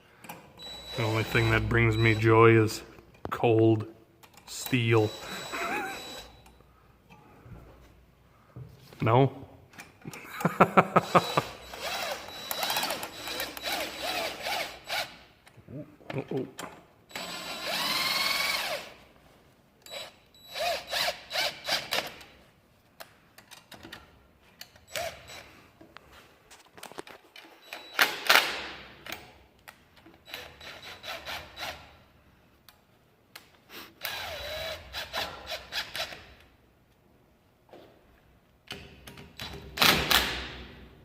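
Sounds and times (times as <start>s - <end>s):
power drill whine: 0.6s - 2.2s, 5.0s - 6.4s, 11.1s - 15.2s, 17.1s - 18.9s, 19.9s - 21.7s, 34.0s - 35.2s.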